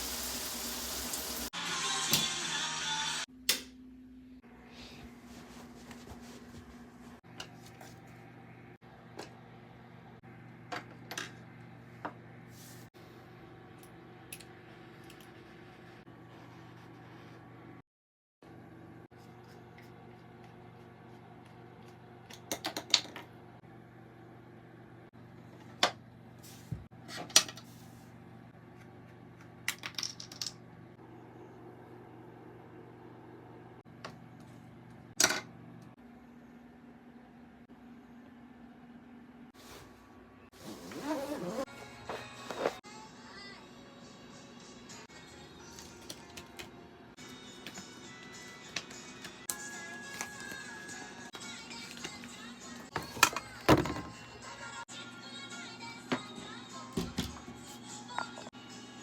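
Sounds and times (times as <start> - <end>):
low room hum: 18.4 - 53.6.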